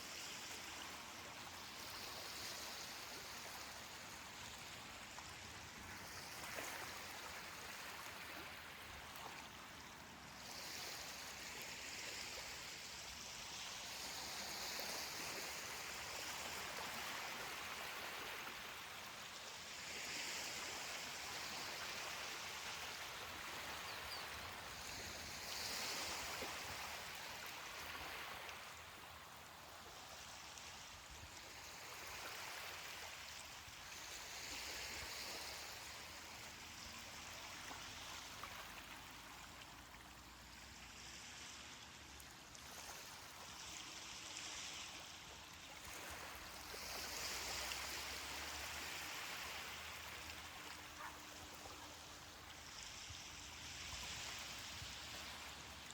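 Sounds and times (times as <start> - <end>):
gentle waves on beach: 0.0 - 55.9.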